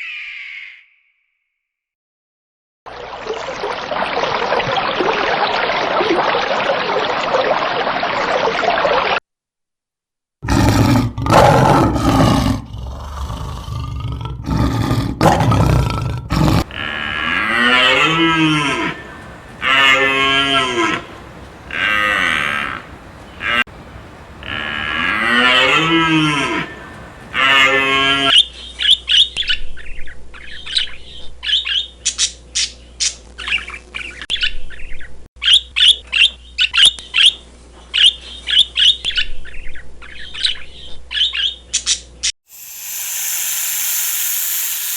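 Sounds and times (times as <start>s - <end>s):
cattle mooing: 16.6s - 28.3s
loud harsh call: 16.6s - 28.3s
small birds chirping: 16.6s - 28.3s.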